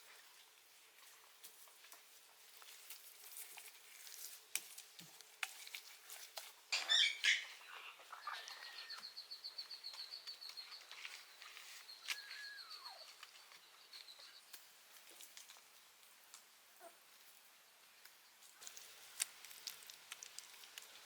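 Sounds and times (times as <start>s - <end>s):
puppies whimpering and whining: 12.0s - 13.2s.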